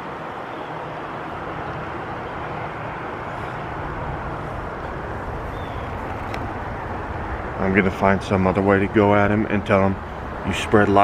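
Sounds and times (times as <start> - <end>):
low wind rumble on microphone: 0.0 - 11.0
rainwater rushing: 0.0 - 11.0
storm wind: 0.0 - 11.0.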